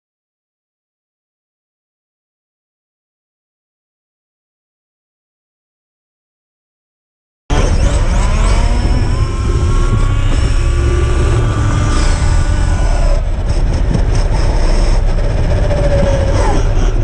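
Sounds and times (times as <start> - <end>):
rc car motor whine: 7.5 - 17.0
wind and road noise rumble: 7.5 - 17.0.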